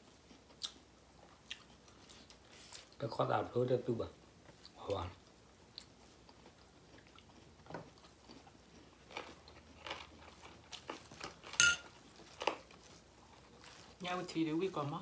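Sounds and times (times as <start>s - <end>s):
chewing and biting: 4.5s - 14.0s.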